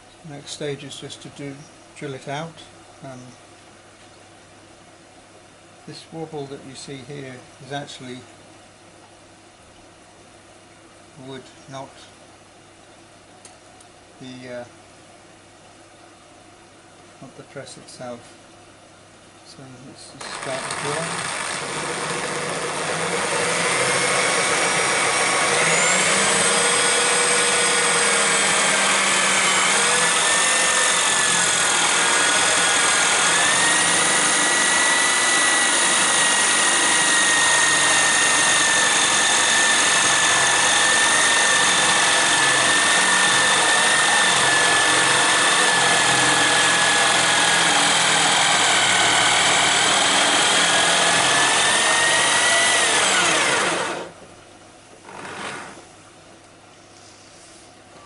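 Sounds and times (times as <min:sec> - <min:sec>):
electric drill boring into wood: 0:20.2 - 0:54.2, 0:55.0 - 0:55.8.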